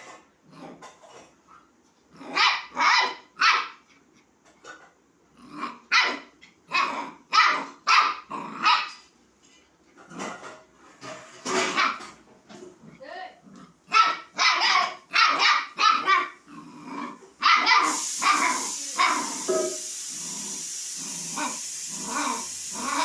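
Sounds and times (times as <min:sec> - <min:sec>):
puppy barking in high yaps: 0:02.3 - 0:03.8, 0:05.9 - 0:09.0, 0:11.7 - 0:12.1, 0:13.9 - 0:16.4, 0:17.4 - 0:19.9.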